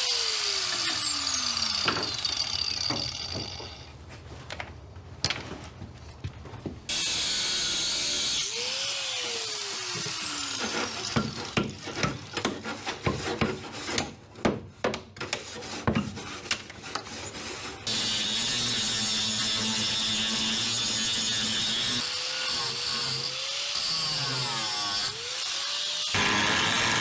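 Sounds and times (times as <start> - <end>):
angle grinder cutting steel: 0.0 - 3.8, 6.9 - 11.6, 17.8 - 27.0.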